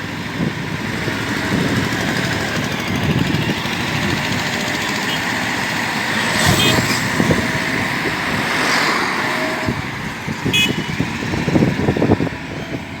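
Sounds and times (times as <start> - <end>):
backhoe diesel engine rumble: 0.0 - 13.0
short high beep: 6.1 - 7.7.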